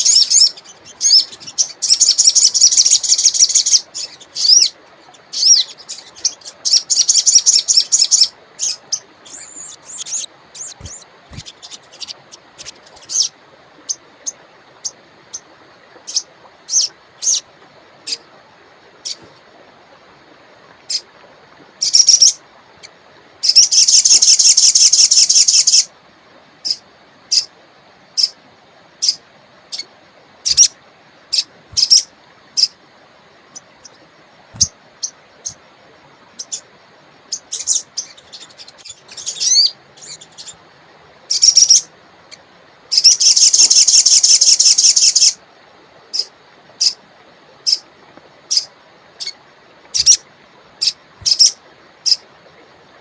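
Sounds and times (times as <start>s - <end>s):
songbird chipping: 0.0s - 13.3s, 30.5s - 30.7s, 31.3s - 32.8s, 42.9s - 45.4s, 50.0s - 50.2s, 50.8s - 52.2s
songbird rapid trills: 0.0s - 15.4s, 23.4s - 25.9s, 29.0s - 32.8s, 33.5s - 35.6s, 41.3s - 45.4s, 48.5s - 50.2s, 50.8s - 52.2s
faint flowing water: 0.0s - 53.0s.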